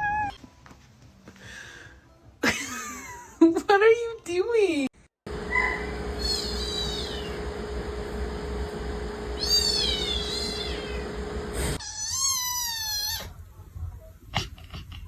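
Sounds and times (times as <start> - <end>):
cat meowing: 0.0 - 0.4, 5.5 - 7.4, 9.4 - 11.1, 11.8 - 13.4.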